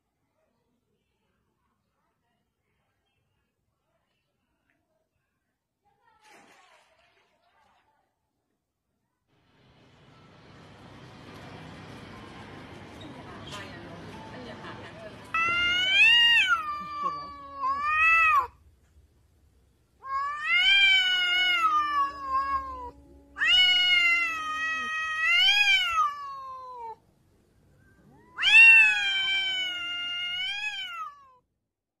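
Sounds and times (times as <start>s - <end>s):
cat yowling: 15.3s - 18.6s, 20.0s - 27.0s, 28.0s - 31.4s.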